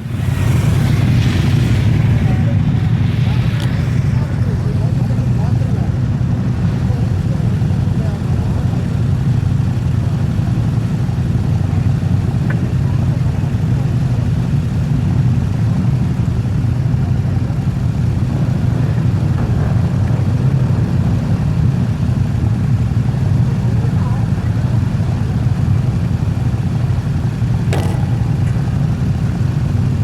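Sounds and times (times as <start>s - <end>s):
motorcycle engines rumbling: 0.0s - 30.0s.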